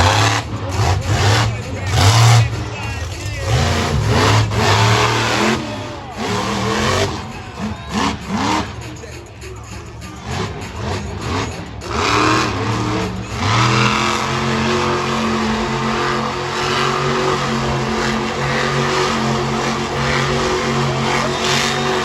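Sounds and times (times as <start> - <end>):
monster truck engine revving: 0.0 - 22.0.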